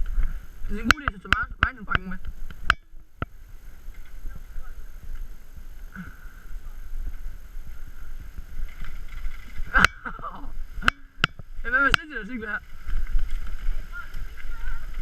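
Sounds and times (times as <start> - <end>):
bike tyres rumbling on trail: 0.0 - 15.0
bike rattles and knocks: 8.4 - 15.0.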